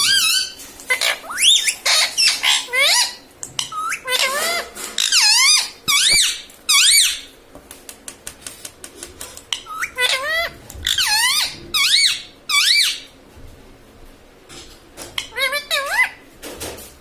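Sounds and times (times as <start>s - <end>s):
parrot shrill squawking calls: 0.0s - 7.3s, 9.6s - 13.1s, 15.2s - 16.2s.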